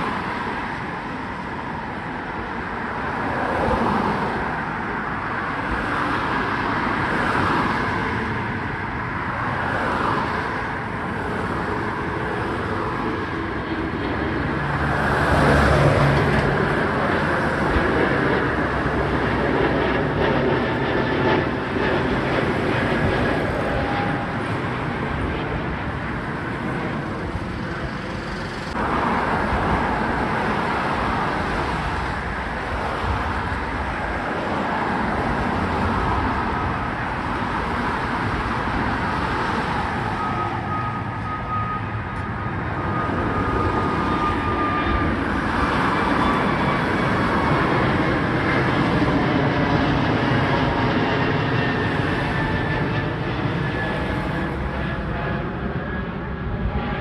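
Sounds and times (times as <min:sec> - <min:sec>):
jet engines roaring: 0:00.0 - 0:57.0
road traffic: 0:00.0 - 0:57.0.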